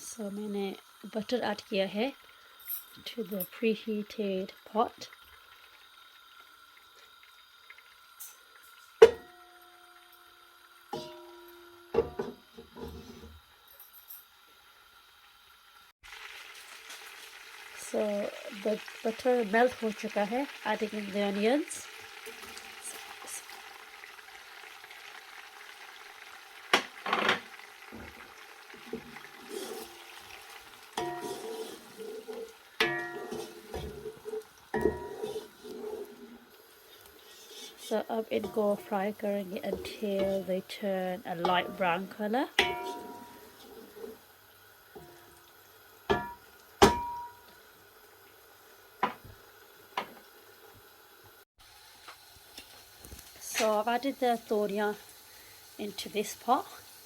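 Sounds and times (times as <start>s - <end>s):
onions sizzling in butter: 0.0s - 57.0s
utensil striking metal pot: 9.0s - 10.0s, 10.9s - 12.4s, 31.0s - 36.0s, 41.4s - 44.1s, 46.1s - 47.5s
stirring in a pot: 26.9s - 44.3s.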